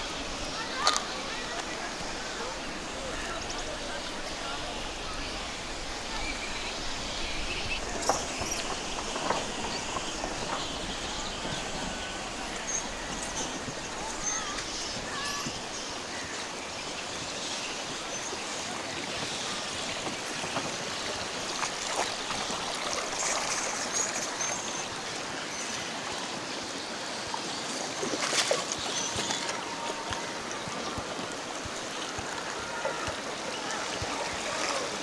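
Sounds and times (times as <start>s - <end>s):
river water rushing: 0.0s - 35.0s.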